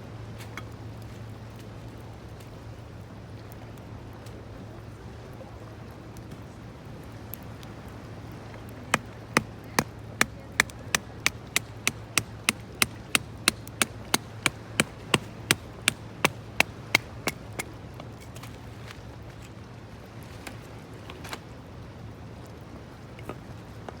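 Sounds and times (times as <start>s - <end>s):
low background hum: 0.0s - 24.0s
rapid sharp taps: 8.9s - 17.7s.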